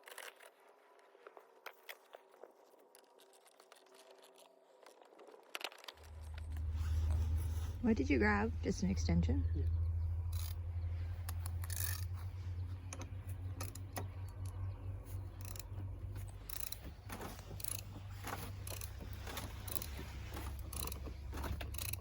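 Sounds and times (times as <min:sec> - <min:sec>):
jack clicking and clanking: 0:06.0 - 0:22.0
steady low hum: 0:06.0 - 0:22.0.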